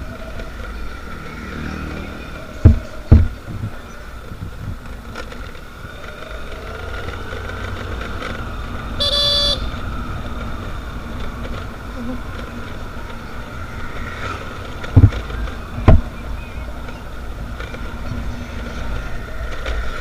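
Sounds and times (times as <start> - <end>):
engine and road rumble: 0.0 - 20.0
vehicle horn: 8.9 - 9.9.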